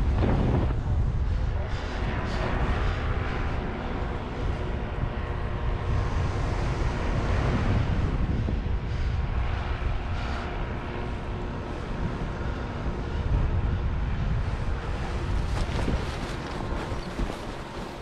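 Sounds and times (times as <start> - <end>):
faint engine hum: 0.0 - 18.0
wind buffeting microphone: 0.0 - 18.0.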